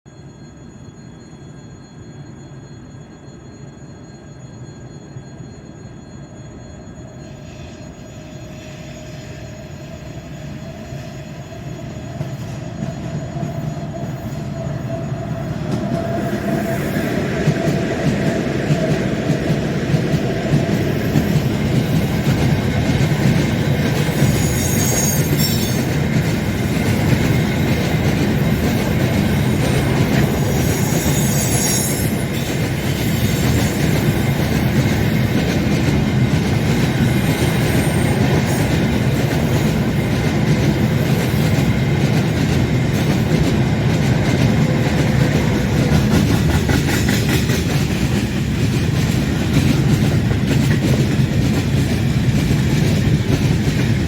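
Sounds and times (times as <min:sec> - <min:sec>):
train wheels rumbling on rails: 0:07.3 - 0:54.0
high-pitched wheel squeals: 0:23.8 - 0:26.1, 0:27.3 - 0:35.1, 0:36.8 - 0:38.8.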